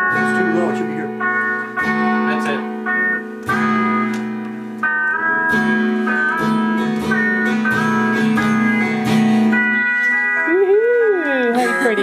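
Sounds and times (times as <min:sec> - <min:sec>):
guitar strummed and picked: 0:00.0 - 0:12.0.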